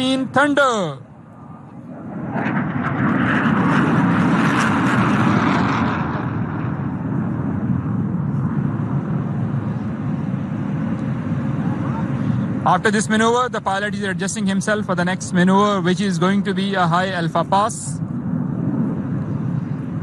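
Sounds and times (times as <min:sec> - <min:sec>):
fighter jet flyby roar: 0:00.0 - 0:20.0.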